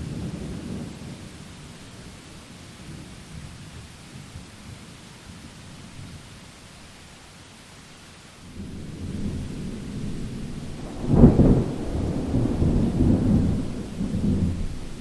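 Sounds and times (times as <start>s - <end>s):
rain hissing: 0.0s - 15.0s
thunder rumbling and clapping: 8.6s - 15.0s.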